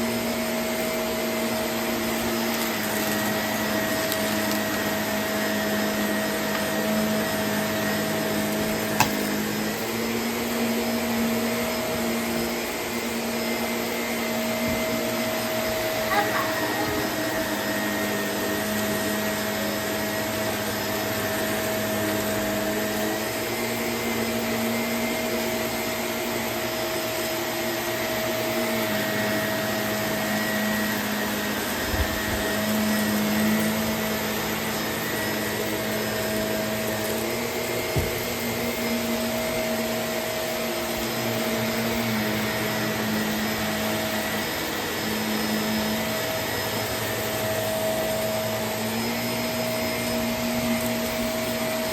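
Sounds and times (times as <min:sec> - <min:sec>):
vacuum cleaner running: 0:00.0 - 0:51.9.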